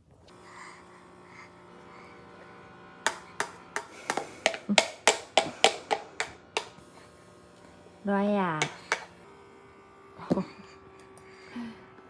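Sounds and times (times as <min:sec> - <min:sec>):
short sharp taps: 0:08.6 - 0:09.1.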